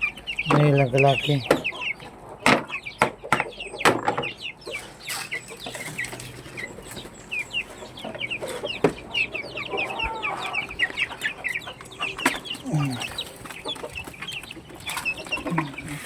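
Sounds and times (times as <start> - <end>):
chicks peeping: 0.0 - 16.0
hen clucking: 0.0 - 16.0
sharp knocks: 2.4 - 4.3.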